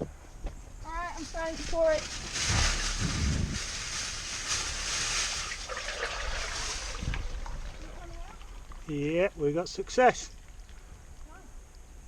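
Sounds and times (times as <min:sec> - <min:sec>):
low thumps: 0:00.4 - 0:04.4
water pouring into pipe: 0:02.0 - 0:09.2.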